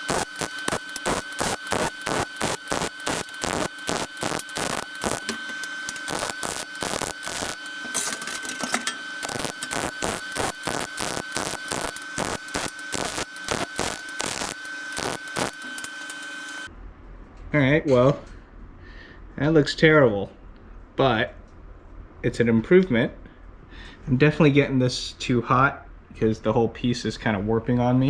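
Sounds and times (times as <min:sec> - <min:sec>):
arc welder crackling: 0:00.0 - 0:16.7
high whine: 0:00.0 - 0:16.7.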